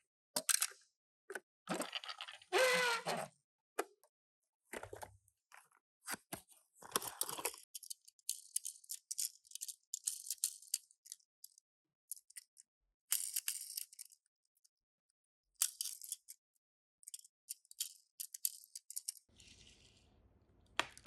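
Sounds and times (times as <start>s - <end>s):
crinkly packaging rustling: 6.8s - 7.7s.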